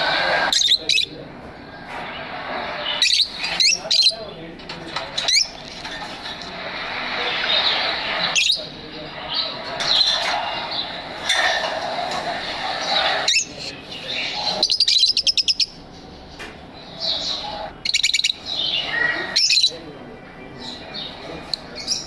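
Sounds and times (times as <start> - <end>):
lovebirds chirping and chattering: 0.0 - 22.0
rapid high chirps: 16.8 - 19.8.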